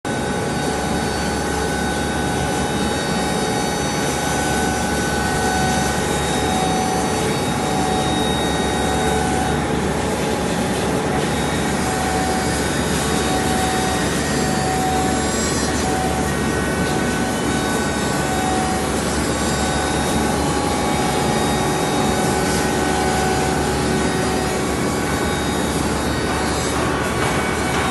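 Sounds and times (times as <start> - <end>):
faint machine whine: 0.1 - 27.9
stone cutting machine grinding: 0.2 - 27.9.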